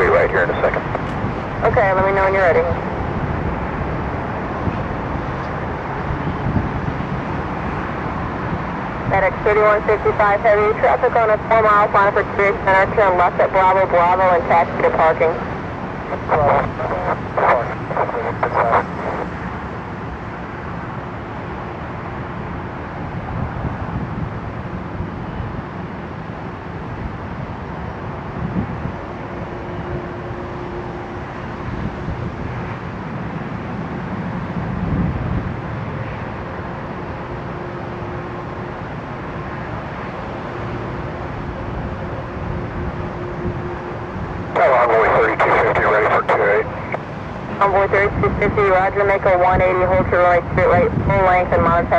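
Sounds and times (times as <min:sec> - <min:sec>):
faint hum: 0:00.0 - 0:04.4, 0:09.0 - 0:19.8, 0:35.4 - 0:51.9
distant jet engines rumbling: 0:00.0 - 0:51.9
traffic: 0:00.0 - 0:51.9.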